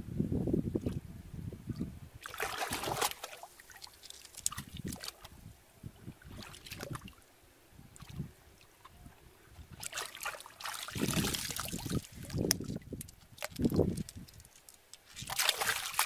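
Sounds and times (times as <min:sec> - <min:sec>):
shallow water splashing: 0:02.2 - 0:05.3, 0:06.0 - 0:07.2, 0:09.6 - 0:16.0.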